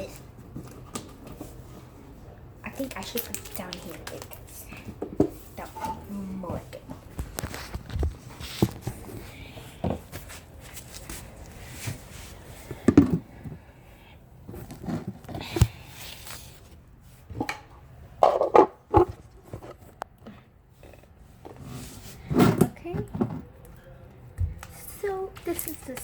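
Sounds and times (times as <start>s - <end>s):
knocks and thumps of handling: 12.7s - 13.6s, 22.3s - 23.6s.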